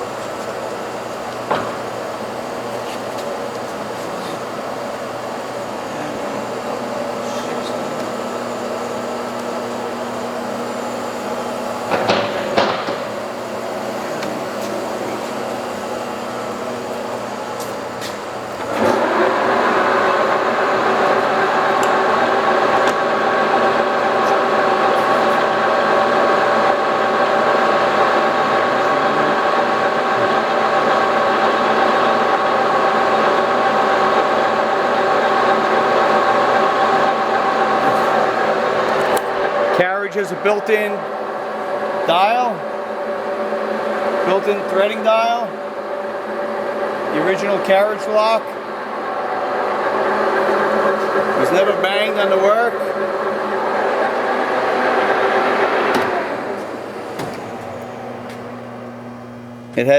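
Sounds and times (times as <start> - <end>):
lathe humming with gear whine: 0.0 - 59.9
machine clunk: 11.9 - 13.2, 55.8 - 58.5.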